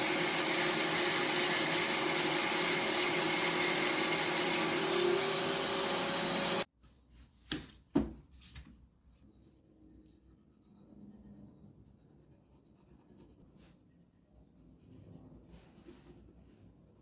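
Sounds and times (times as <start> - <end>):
electric motor hissing: 0.0 - 6.7.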